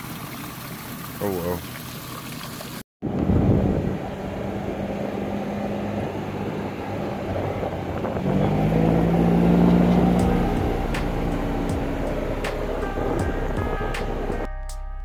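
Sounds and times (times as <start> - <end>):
engine humming: 3.0 - 15.0.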